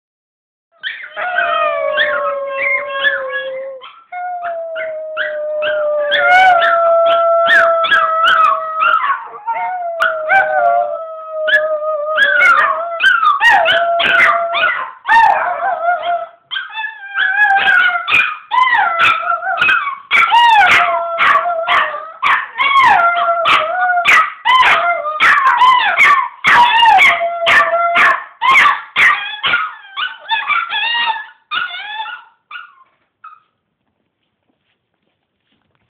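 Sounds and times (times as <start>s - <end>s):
dogs yipping and barking: 0.8s - 4.1s, 7.5s - 10.4s, 12.2s - 15.8s, 16.5s - 33.6s
dogs howling: 0.9s - 3.8s, 4.4s - 28.2s.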